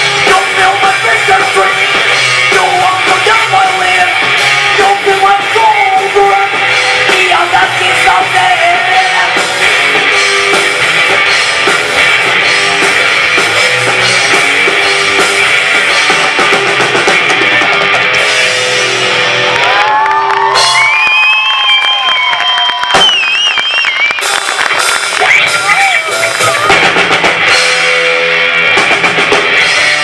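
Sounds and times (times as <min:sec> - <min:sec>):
person singing: 0:00.0 - 0:09.8
drum kit: 0:00.0 - 0:30.0
electric guitar: 0:00.0 - 0:30.0.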